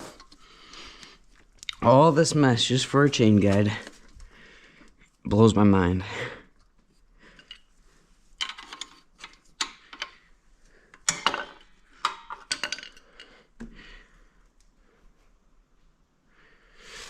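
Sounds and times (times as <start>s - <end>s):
metal tools clinking: 11.1s - 13.4s.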